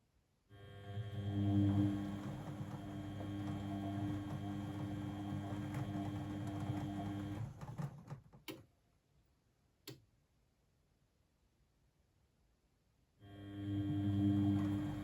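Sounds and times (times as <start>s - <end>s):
washing machine humming: 1.0s - 8.2s, 13.6s - 15.0s.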